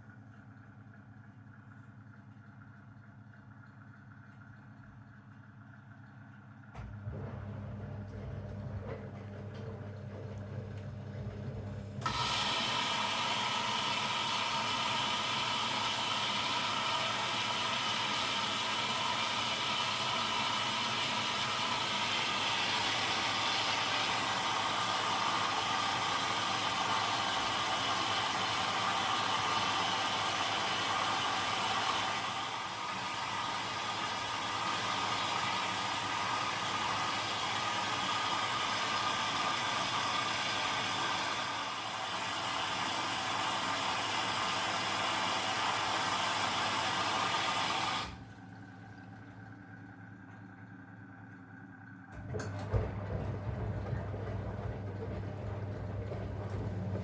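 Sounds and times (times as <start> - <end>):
washing machine hum: 0.0 - 57.0.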